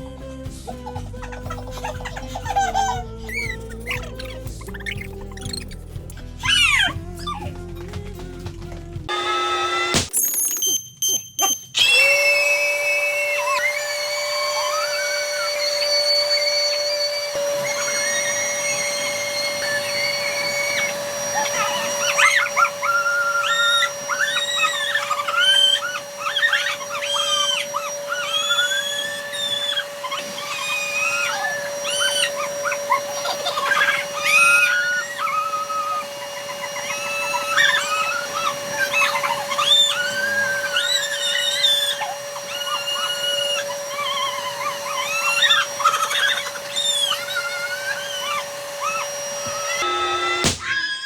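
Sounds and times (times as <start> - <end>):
squeaky rubber balloon tones: 0.8 - 7.9, 14.6 - 51.0
electric air blower whine: 9.1 - 10.1, 11.8 - 51.0.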